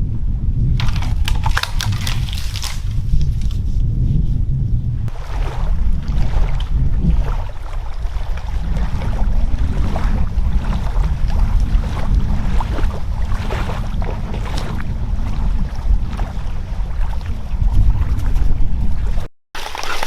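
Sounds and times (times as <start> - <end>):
wind buffeting microphone: 0.0 - 20.0
small clicks and rustles: 0.8 - 3.6.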